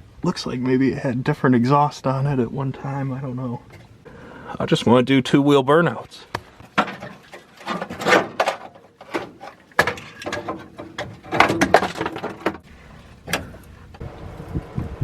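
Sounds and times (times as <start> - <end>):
tools clanking on metal: 3.5 - 4.0, 6.3 - 14.0.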